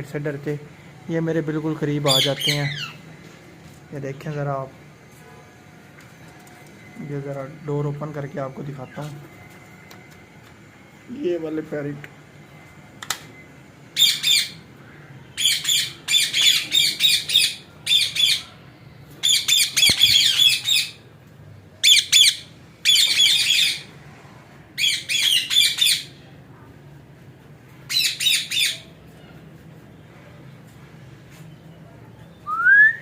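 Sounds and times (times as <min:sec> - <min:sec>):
parakeets squawking: 0:02.0 - 0:03.0, 0:14.0 - 0:14.6, 0:15.4 - 0:18.5, 0:19.2 - 0:21.0, 0:21.8 - 0:23.9, 0:24.8 - 0:26.2, 0:27.9 - 0:28.9.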